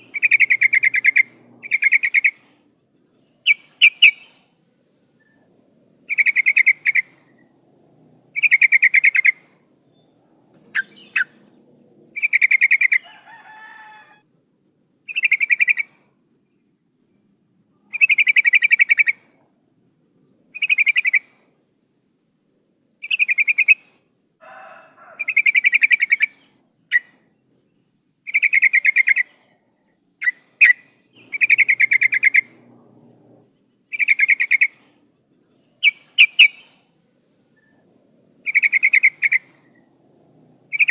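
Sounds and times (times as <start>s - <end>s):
bird rapid chattering calls: 0.0s - 2.6s, 3.4s - 4.5s, 5.3s - 9.6s, 10.7s - 13.0s, 17.9s - 19.2s, 25.2s - 27.2s, 28.3s - 29.4s, 30.2s - 32.7s, 33.9s - 35.0s, 35.8s - 36.9s, 37.6s - 40.9s.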